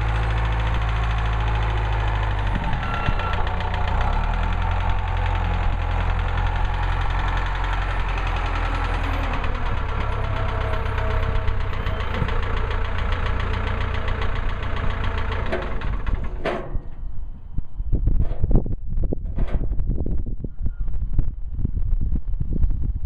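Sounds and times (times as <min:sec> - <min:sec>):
portable sawmill gas engine running: 0:00.0 - 0:16.9.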